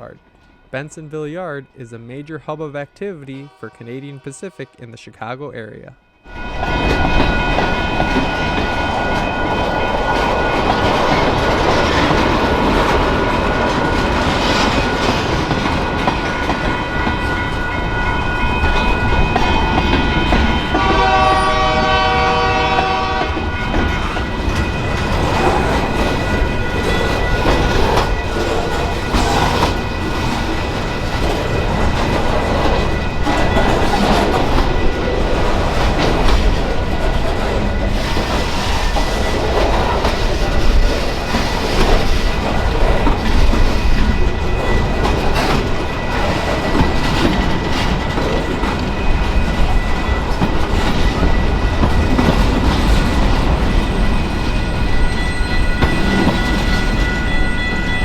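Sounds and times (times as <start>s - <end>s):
train horn: 1.4s - 5.0s, 16.4s - 30.4s
freight train rumbling past: 5.8s - 58.0s
wheels clattering over rail joints: 6.7s - 21.0s, 22.9s - 58.0s.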